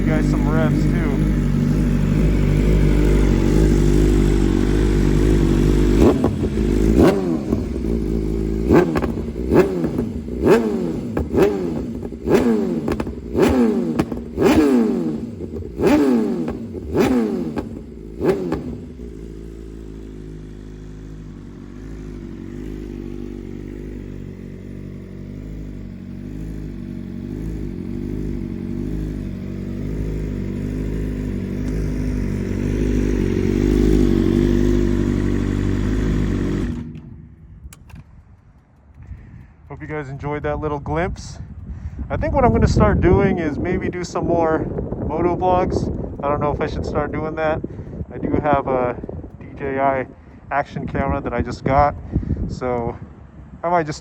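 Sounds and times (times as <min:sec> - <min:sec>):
engine revving in throttle blips: 0:00.0 - 0:37.8
motorcycle engine idling: 0:00.0 - 0:54.0.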